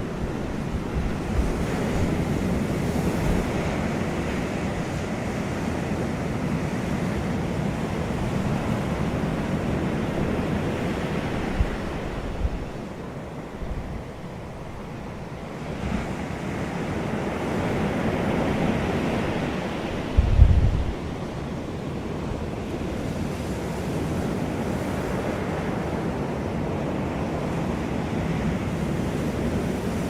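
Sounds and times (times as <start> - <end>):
gusts thumping microphone: 19.9 - 21.2
wind rushing: 19.9 - 21.3.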